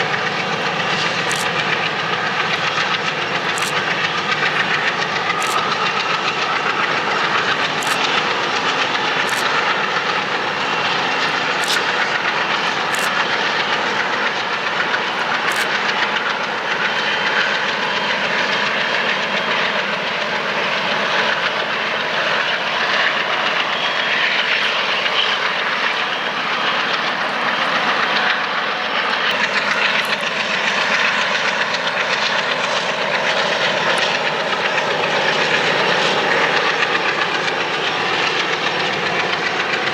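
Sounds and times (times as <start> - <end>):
train wheels on rail: 0.0 - 39.9
sharp clicks: 1.0 - 10.0, 11.0 - 13.2, 15.0 - 15.8.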